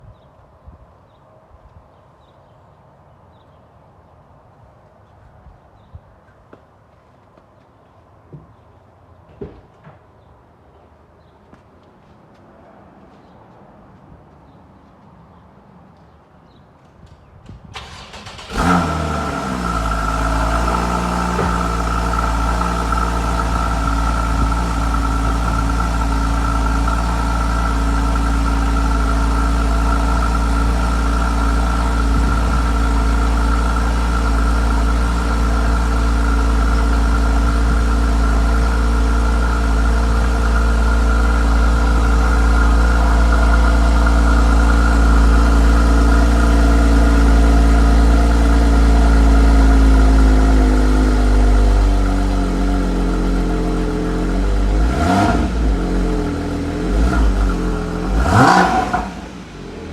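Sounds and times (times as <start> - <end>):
car engine starting and idling: 17.7 - 59.9.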